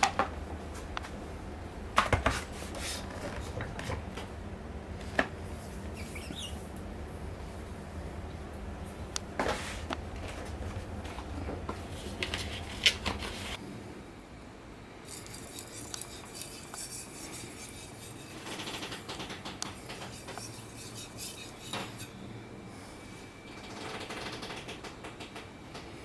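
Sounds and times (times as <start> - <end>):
knife blade scraping: 19.8 - 22.2.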